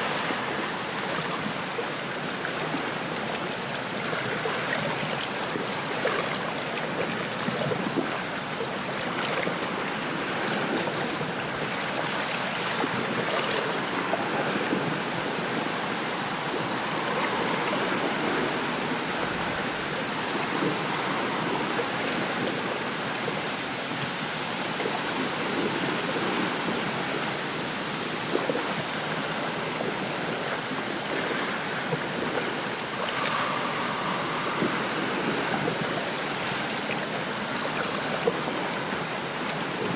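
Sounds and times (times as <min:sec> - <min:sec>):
waves lapping at shore: 0:00.0 - 0:39.9
wind rustling through reeds: 0:16.1 - 0:22.8.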